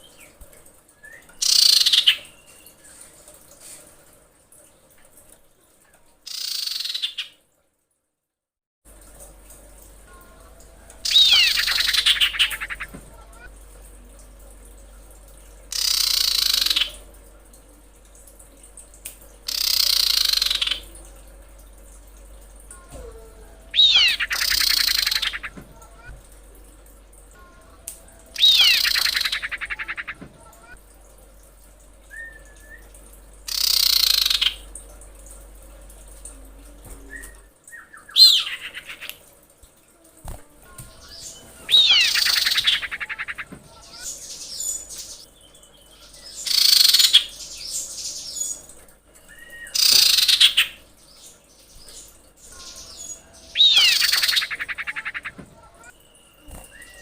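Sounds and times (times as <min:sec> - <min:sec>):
bird harsh rasping call: 0:11.0 - 0:12.9, 0:23.7 - 0:25.5, 0:28.4 - 0:30.2, 0:41.2 - 0:44.1, 0:53.4 - 0:55.3
bird whistle: 0:23.7 - 0:25.4, 0:28.4 - 0:29.5, 0:41.7 - 0:42.7, 0:53.5 - 0:54.5.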